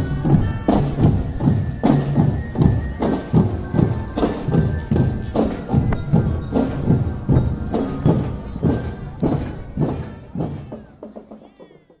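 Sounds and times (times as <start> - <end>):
marching drum band: 0.0 - 12.0.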